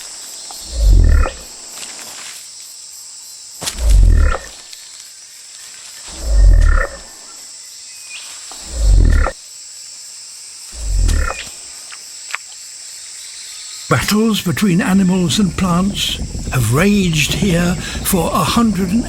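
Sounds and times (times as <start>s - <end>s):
high hum of insects: 0.0s - 19.0s
cassowary booming: 3.7s - 4.5s, 10.8s - 11.5s, 13.9s - 19.0s.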